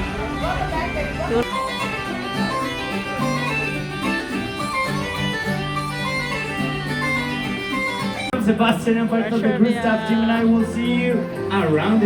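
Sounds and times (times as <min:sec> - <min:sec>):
live band music: 0:00.0 - 0:08.4.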